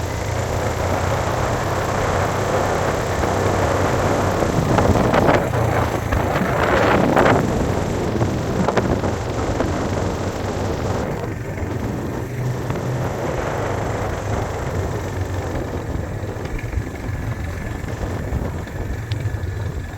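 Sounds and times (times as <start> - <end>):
vehicle engine droning: 0.0 - 19.9.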